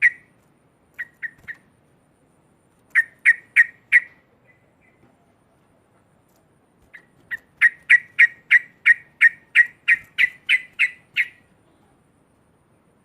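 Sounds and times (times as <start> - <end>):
bird chattering call: 0.0 - 0.3, 1.0 - 1.6, 2.9 - 5.0, 6.9 - 11.5.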